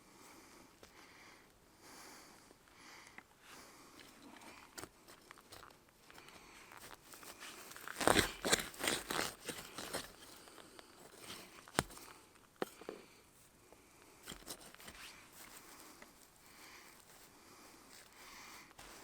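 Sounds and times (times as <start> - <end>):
tool crunching garden soil: 4.0 - 13.1, 14.1 - 19.0.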